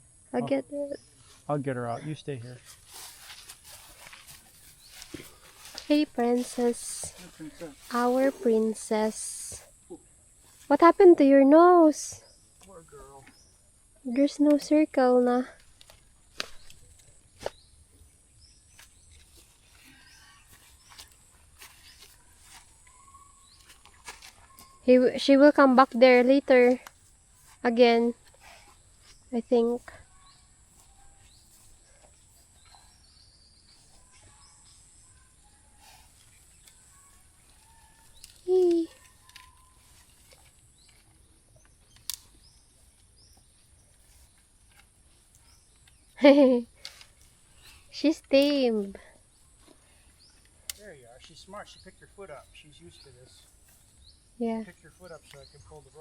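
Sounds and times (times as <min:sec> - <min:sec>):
quiet outdoor ambience: 0:00.0 - 0:56.0
faint high chirps: 0:21.7 - 0:24.9.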